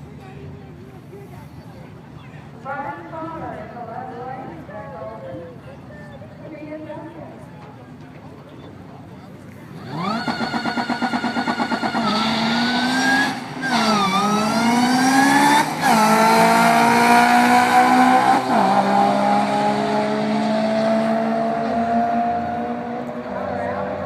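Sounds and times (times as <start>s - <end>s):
car engine at full throttle: 9.6s - 24.0s.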